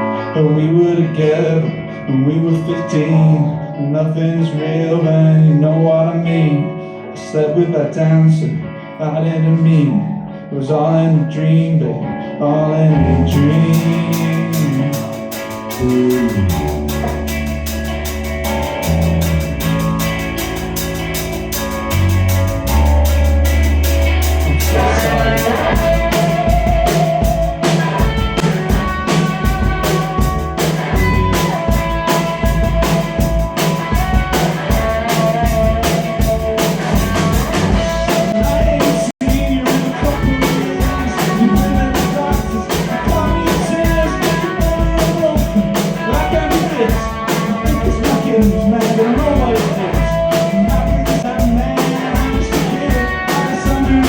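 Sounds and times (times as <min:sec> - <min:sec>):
guitar: 0:00.0 - 0:54.0
wavering lead melody: 0:12.8 - 0:47.4
drum kit beat: 0:13.0 - 0:54.0.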